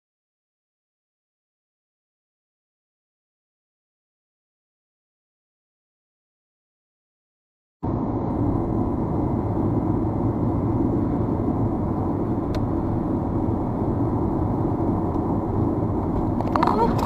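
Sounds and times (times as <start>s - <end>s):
car road and engine noise: 7.8s - 17.0s.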